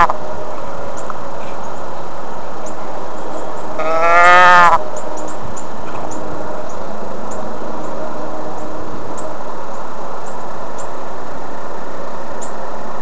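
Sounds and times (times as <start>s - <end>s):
distant train rumble: 0.0s - 13.0s
faint low hum: 0.0s - 13.0s.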